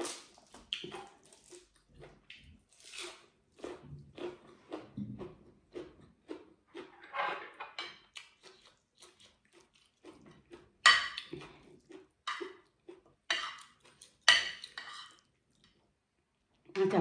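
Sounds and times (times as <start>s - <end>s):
chewing food: 0.0s - 7.0s, 7.8s - 16.8s
cutlery clinking on a plate: 7.1s - 8.1s, 10.9s - 11.3s, 13.3s - 13.7s, 14.3s - 15.2s.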